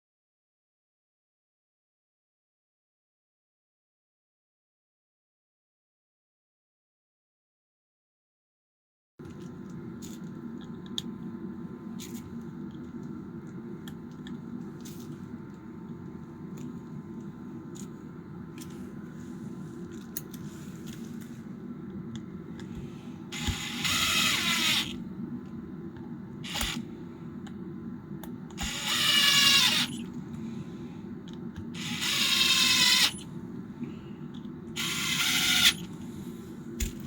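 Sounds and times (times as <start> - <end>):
impact wrench motor whine: 23.3 - 25.0, 26.4 - 26.9, 28.6 - 30.1, 31.6 - 33.3, 34.8 - 36.0.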